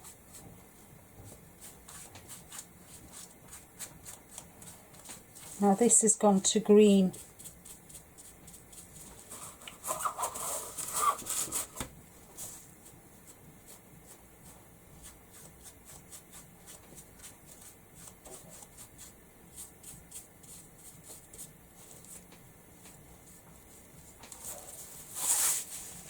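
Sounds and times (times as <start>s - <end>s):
scrubbing and handling noise: 0.0s - 26.0s.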